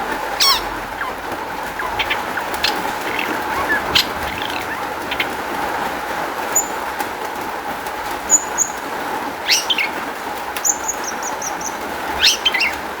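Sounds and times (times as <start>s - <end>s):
harsh falling bird calls: 0.1s - 6.9s
shrike singing: 0.4s - 5.7s.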